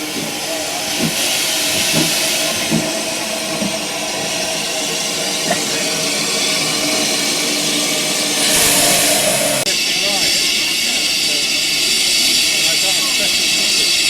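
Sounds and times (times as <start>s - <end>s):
steam locomotive hissing: 0.0s - 14.0s.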